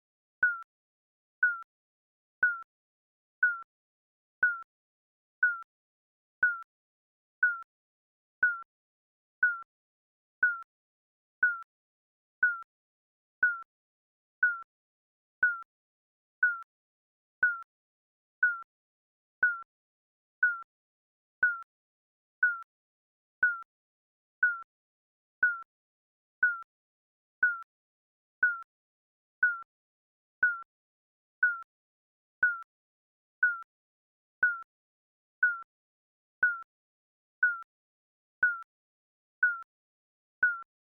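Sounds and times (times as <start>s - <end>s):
digital timer beeping: 0.4s - 0.7s, 1.4s - 1.7s, 2.4s - 2.7s, 3.4s - 3.7s, 4.4s - 4.7s, 5.4s - 5.7s, 6.4s - 6.7s, 7.4s - 7.7s, 8.4s - 8.7s, 9.4s - 9.7s, 10.4s - 10.7s, 11.4s - 11.7s, 12.4s - 12.7s, 13.4s - 13.7s, 14.4s - 14.7s, 15.4s - 15.7s, 16.4s - 16.7s, 17.4s - 17.7s, 18.4s - 18.7s, 19.4s - 19.7s, 20.4s - 20.7s, 21.4s - 21.7s, 22.4s - 22.7s, 23.4s - 23.7s, 24.4s - 24.7s, 25.4s - 25.7s, 26.4s - 26.7s, 27.4s - 27.7s, 28.4s - 28.7s, 29.4s - 29.7s, 30.4s - 30.7s, 31.4s - 31.7s, 32.4s - 32.7s, 33.4s - 33.7s, 34.4s - 34.7s, 35.4s - 35.7s, 36.4s - 36.7s, 37.4s - 37.7s, 38.4s - 38.7s, 39.4s - 39.7s, 40.4s - 40.7s.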